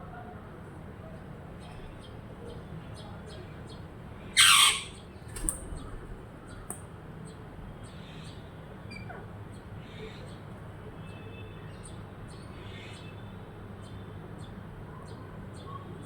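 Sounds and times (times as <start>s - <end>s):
parrot squawk: 4.4s - 5.0s.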